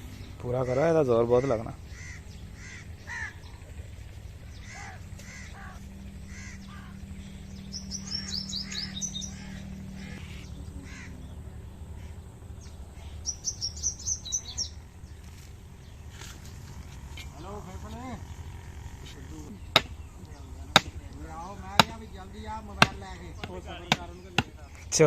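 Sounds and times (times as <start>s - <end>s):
birds calling: 0.0s - 25.0s
steady low hum: 0.0s - 25.0s
high chirps: 1.8s - 16.2s.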